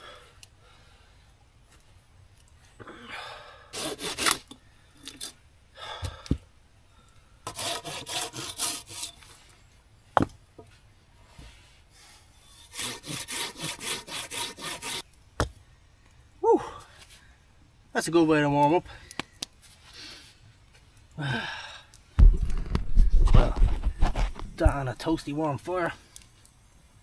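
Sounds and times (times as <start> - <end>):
hand saw cutting wood: 3.8 - 4.5, 7.5 - 9.3, 12.5 - 15.0.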